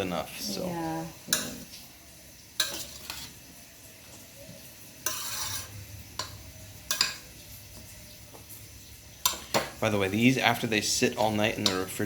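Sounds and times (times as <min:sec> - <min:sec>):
dishes clinking and knocking: 0:01.3 - 0:01.7, 0:04.5 - 0:08.5, 0:09.2 - 0:09.8, 0:11.2 - 0:12.0.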